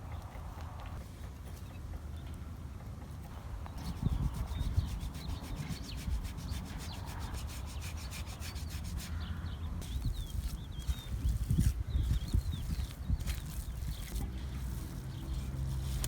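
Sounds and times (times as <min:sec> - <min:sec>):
small birds chirping: 0:00.0 - 0:16.0
fast scraping strokes: 0:03.8 - 0:16.0.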